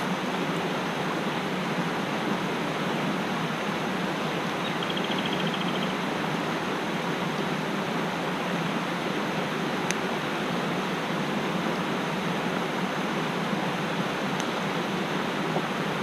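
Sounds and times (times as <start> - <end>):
stream rushing over rocks: 0.0 - 16.0
bird trilling: 4.6 - 6.0.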